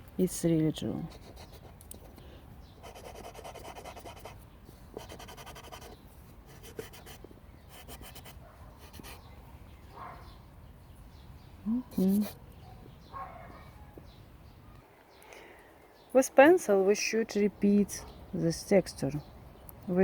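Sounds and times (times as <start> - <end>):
charcoal scratching on paper: 1.1 - 1.8, 2.8 - 9.2.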